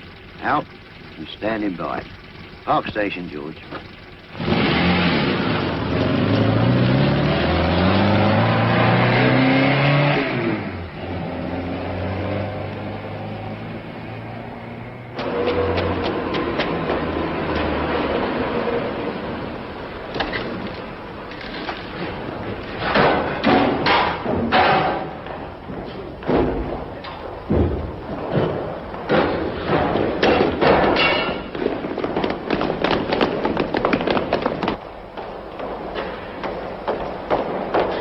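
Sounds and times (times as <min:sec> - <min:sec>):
thumps knocks and clatter: 0:15.2 - 0:38.0.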